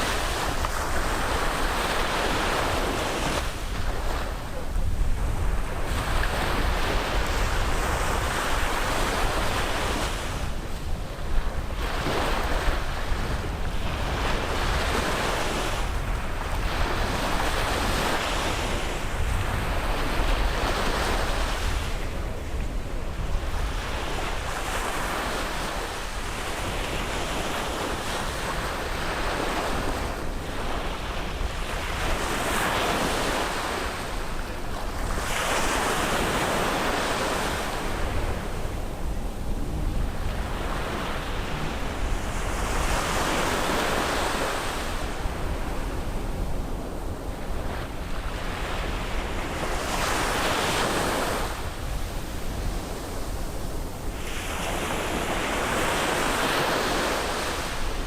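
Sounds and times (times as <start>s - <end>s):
sea waves breaking on shore: 0.0s - 58.0s
steady low rumble: 37.8s - 42.9s.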